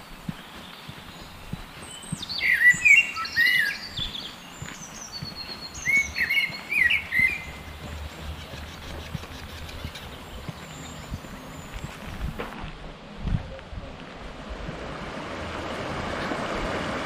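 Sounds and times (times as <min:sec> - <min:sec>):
songbird warbling: 0:00.4 - 0:12.2.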